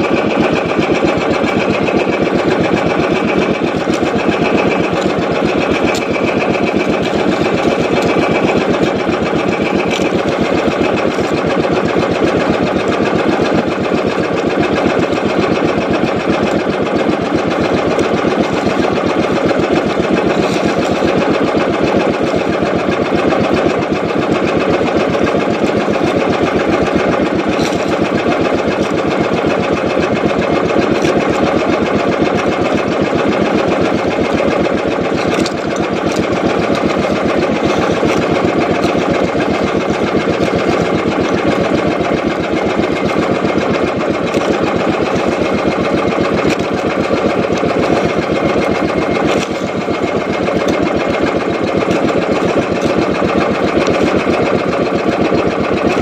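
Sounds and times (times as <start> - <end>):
boat engine chugging: 0.0 - 56.0.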